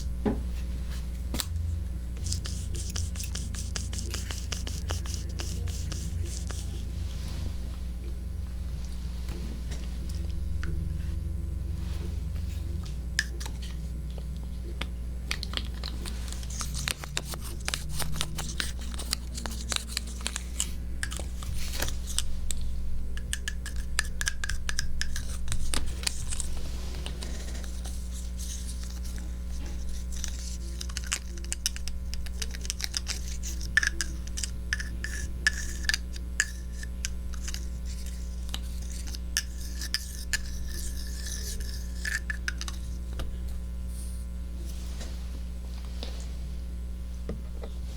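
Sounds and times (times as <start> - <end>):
steady low hum: 0.0 - 47.9
scratching and rubbing on microphone: 2.2 - 7.6.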